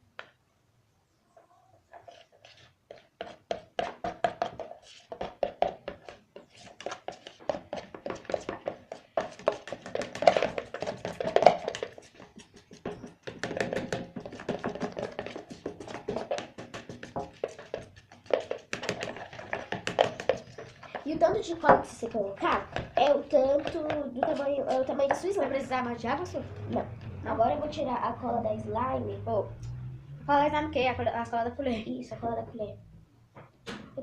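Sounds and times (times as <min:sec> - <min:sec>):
spoons stirring slime: 0:01.8 - 0:26.9
spoons knocking against containers: 0:02.9 - 0:25.6.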